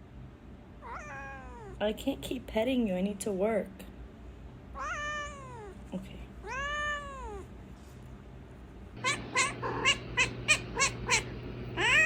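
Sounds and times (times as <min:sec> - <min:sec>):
cat meowing: 0:00.8 - 0:01.8, 0:04.8 - 0:05.8, 0:06.4 - 0:07.5, 0:09.0 - 0:12.0
short chirping meows: 0:09.0 - 0:12.0.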